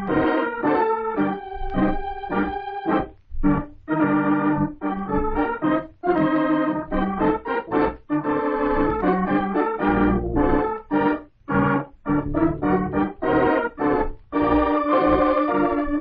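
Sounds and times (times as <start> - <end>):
organ playing a melody: 0.0 - 16.0.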